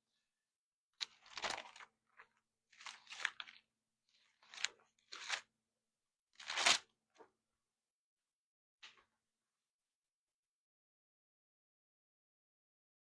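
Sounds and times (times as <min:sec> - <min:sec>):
thin pages rustling: 0:01.0 - 0:01.9, 0:02.8 - 0:03.6, 0:04.2 - 0:05.5, 0:06.4 - 0:06.8.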